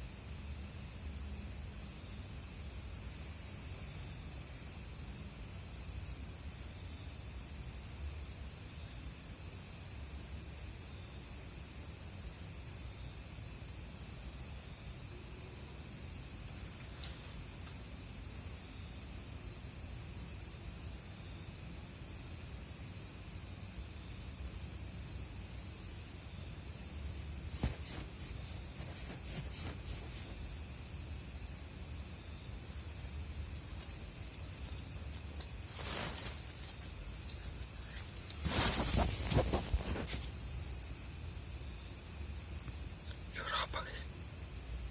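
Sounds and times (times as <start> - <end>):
crickets droning: 0.0 - 44.9
insect trilling in bursts: 27.5 - 30.8, 32.9 - 41.0.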